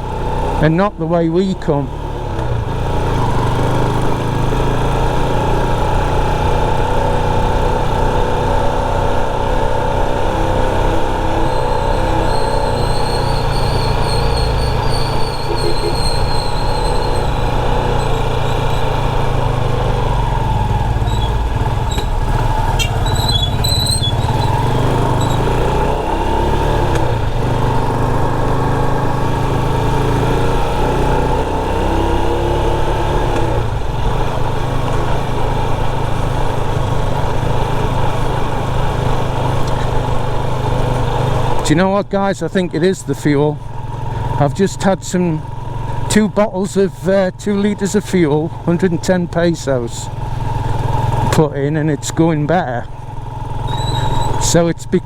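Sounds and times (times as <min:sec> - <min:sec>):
motorcycle engine running: 0:00.0 - 0:55.0
road and wind noise: 0:00.0 - 0:55.0
short high squeaks: 0:11.2 - 0:19.2, 0:21.0 - 0:25.6, 0:53.6 - 0:54.6
thin high squeal: 0:11.5 - 0:18.9, 0:53.7 - 0:54.4.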